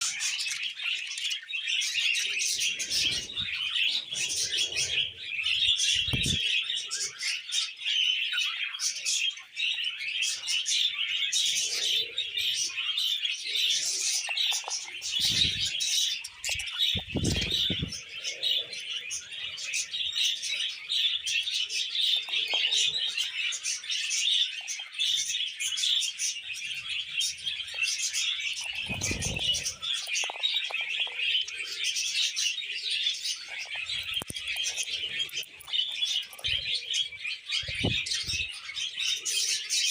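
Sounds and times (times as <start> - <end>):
budgerigars warbling: 0.0 - 39.9.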